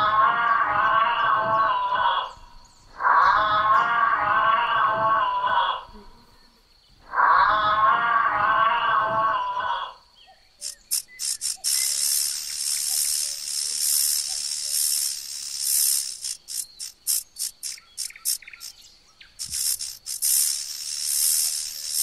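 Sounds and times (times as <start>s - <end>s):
wavering animal call: 3.0s - 5.9s, 7.1s - 10.0s
snake hissing: 10.6s - 18.8s, 19.4s - 22.0s.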